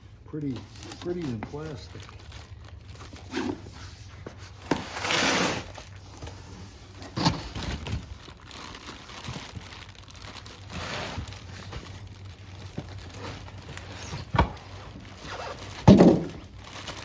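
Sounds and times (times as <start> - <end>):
plastic packaging crinkling: 0.3 - 17.0.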